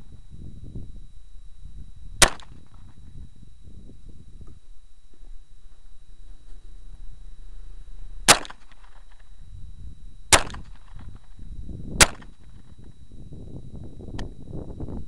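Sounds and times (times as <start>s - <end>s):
pistol shots with echo: 2.2s - 2.6s, 8.3s - 9.0s, 10.3s - 11.0s, 12.0s - 12.4s.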